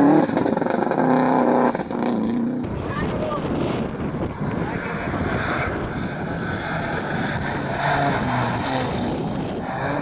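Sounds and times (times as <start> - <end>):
wind buffeting microphone: 2.6 - 10.0
rally car engine running: 3.5 - 10.0.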